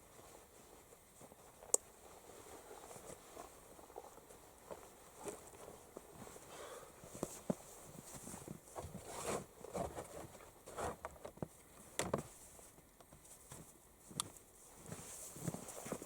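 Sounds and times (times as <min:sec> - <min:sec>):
clothing and gear rustling: 0:00.0 - 0:16.0.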